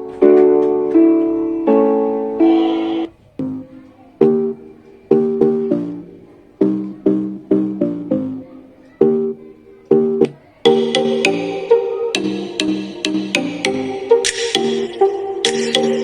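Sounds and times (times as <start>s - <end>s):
plucked guitar-like notes: 0.0s - 16.0s
electronic pop music on speaker: 2.4s - 16.0s
crisp percussion beat: 10.2s - 16.0s.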